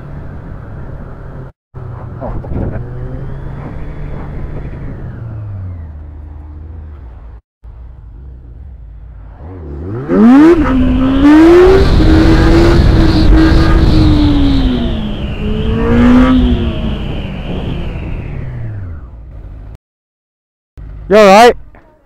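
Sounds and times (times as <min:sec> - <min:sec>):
motorcycle engine revving: 0:01.8 - 0:07.4, 0:08.0 - 0:19.7.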